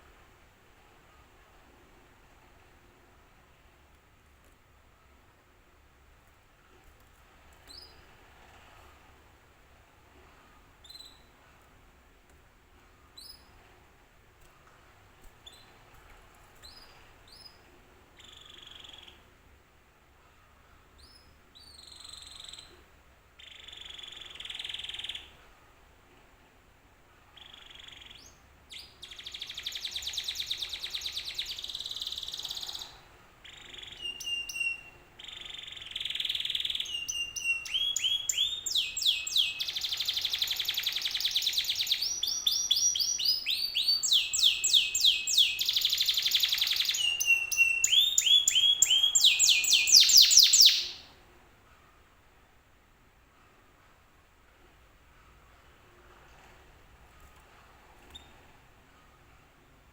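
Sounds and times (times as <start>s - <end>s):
canary singing: 10.8s - 11.3s, 18.2s - 19.3s, 21.0s - 22.8s, 23.4s - 25.4s, 27.4s - 51.1s.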